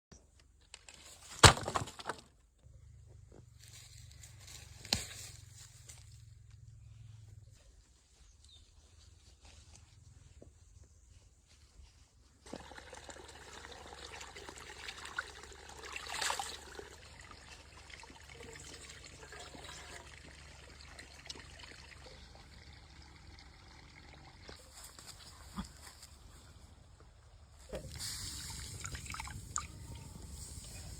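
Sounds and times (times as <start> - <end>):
water trickling and pouring: 12.4 - 24.6, 28.3 - 30.0
water splashing: 12.5 - 24.4.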